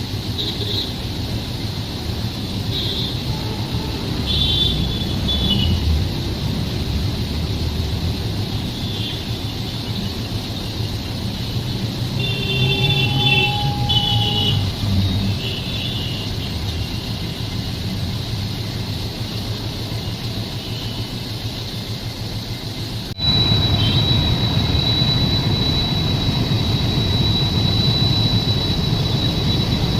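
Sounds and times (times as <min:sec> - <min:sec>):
train rumbling: 0:00.0 - 0:29.9
high-pitched squeals: 0:11.5 - 0:17.6, 0:23.1 - 0:29.9.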